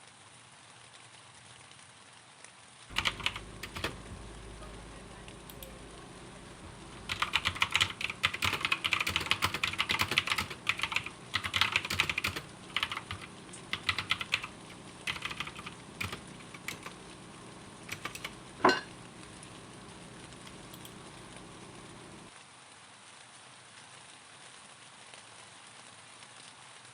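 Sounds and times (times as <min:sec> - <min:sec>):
typing on computer keyboard: 0:02.9 - 0:22.3.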